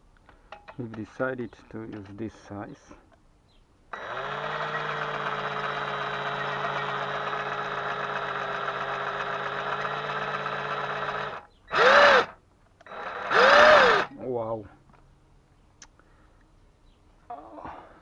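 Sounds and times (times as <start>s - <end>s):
electric power tool motor: 3.9s - 14.1s.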